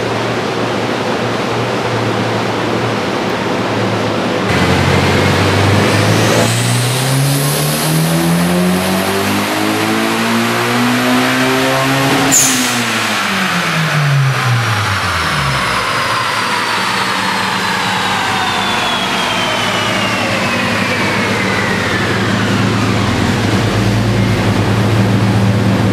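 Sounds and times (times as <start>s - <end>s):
high whine winding down: 3.4s - 25.9s
turbocharged engine revving: 4.5s - 25.9s
sharp hiss: 12.3s - 13.5s.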